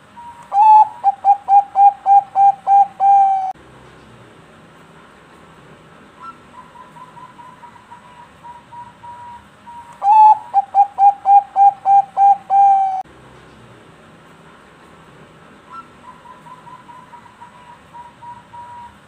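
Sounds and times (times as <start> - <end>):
dove cooing: 0.1 - 3.6, 6.2 - 9.4, 10.0 - 13.0, 15.7 - 19.0.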